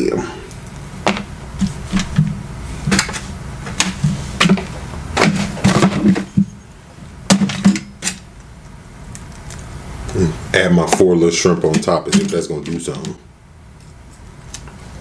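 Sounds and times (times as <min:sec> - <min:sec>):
food containers and utensils clattering: 0:01.1 - 0:08.3, 0:11.6 - 0:13.1.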